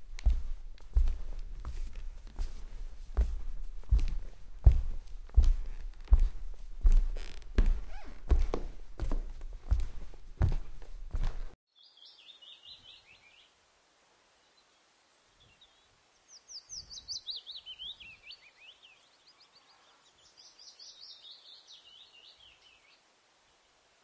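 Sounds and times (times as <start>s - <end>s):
songbird singing: 11.7s - 13.6s, 14.3s - 23.8s.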